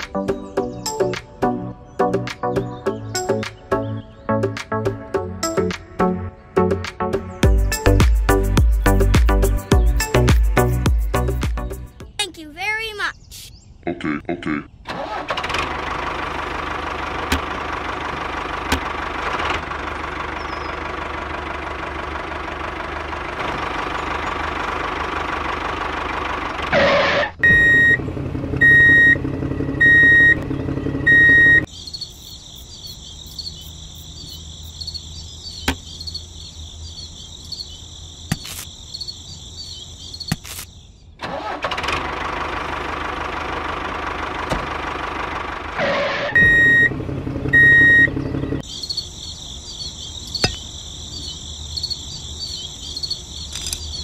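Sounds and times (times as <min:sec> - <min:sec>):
tractor engine running: 0:14.8 - 0:31.8, 0:41.2 - 0:54.0
sharp clicks: 0:40.2 - 0:40.7, 0:53.4 - 0:54.0.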